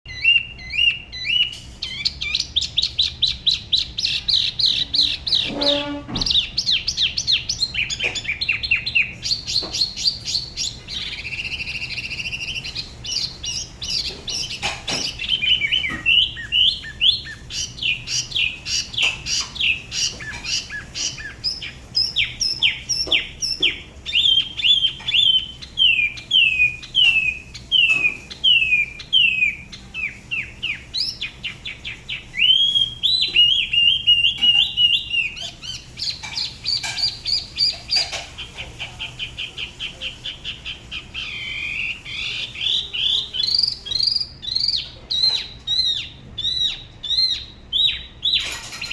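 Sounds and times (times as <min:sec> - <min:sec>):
bird singing varied song: 0:00.0 - 0:48.9.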